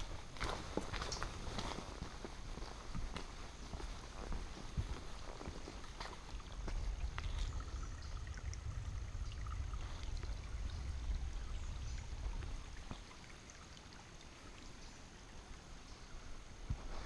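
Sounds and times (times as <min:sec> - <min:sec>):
footsteps on a trail: 0:00.0 - 0:07.8, 0:12.3 - 0:13.2, 0:16.7 - 0:17.0
wind rumble on microphone: 0:04.2 - 0:13.1.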